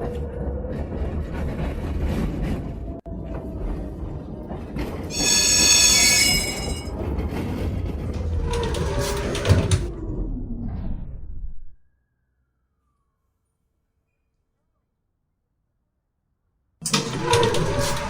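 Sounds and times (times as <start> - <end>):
tram rumbling on rails: 0.0 - 10.3
high wheel squeal: 5.1 - 6.9.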